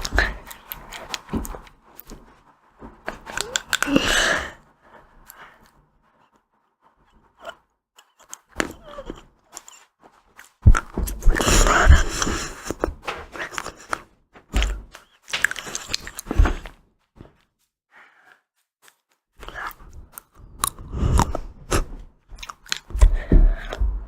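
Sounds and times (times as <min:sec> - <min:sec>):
crunchy chewing of ice cream: 0:18.3 - 0:23.0.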